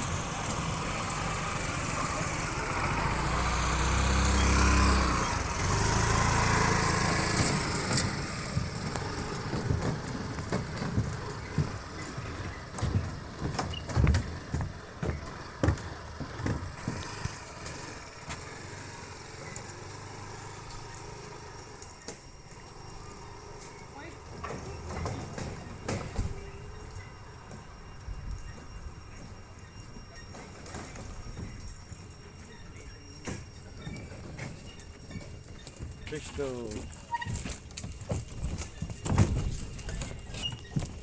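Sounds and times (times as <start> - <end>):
vehicle engine running: 0.0 - 41.0
low thumps and knocks: 6.8 - 18.4.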